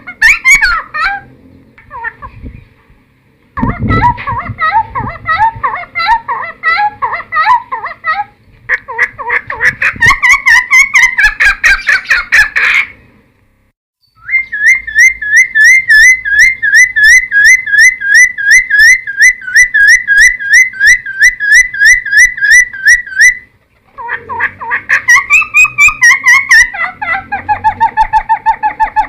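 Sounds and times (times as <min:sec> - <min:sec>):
bird chattering: 0:00.0 - 0:02.6, 0:03.6 - 0:13.0, 0:14.2 - 0:29.0
bird singing whistled notes: 0:14.0 - 0:23.4.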